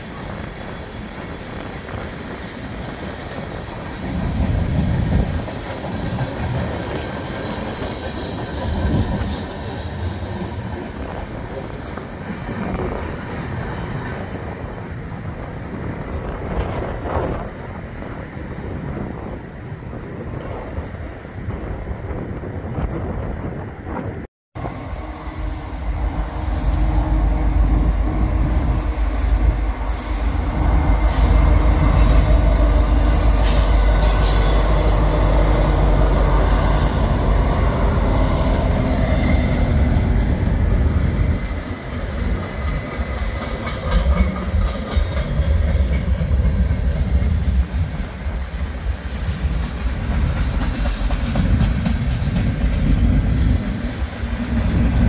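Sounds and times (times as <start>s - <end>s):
freight train rumbling past: 0.0s - 55.0s
train wheels squealing: 7.3s - 15.9s.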